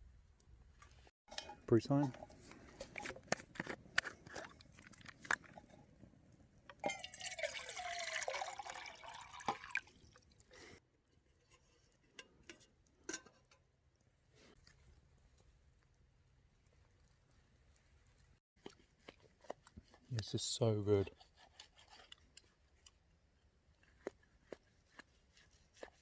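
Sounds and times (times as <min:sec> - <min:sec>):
liquid pouring into a mug: 0:06.8 - 0:10.5.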